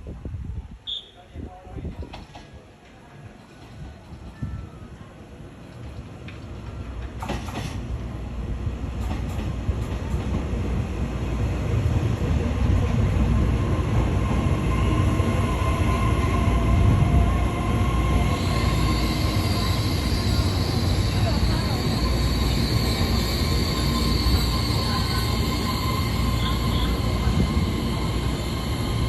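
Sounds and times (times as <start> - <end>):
train rumbling: 1.8 - 29.0
train brakes squealing: 17.8 - 29.0.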